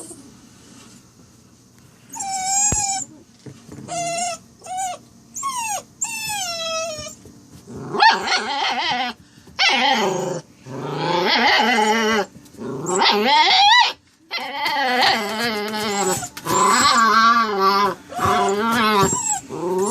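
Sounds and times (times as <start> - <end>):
puppy whining: 0.0 - 0.4, 2.1 - 19.9
puppy growl-like moans: 7.7 - 19.9.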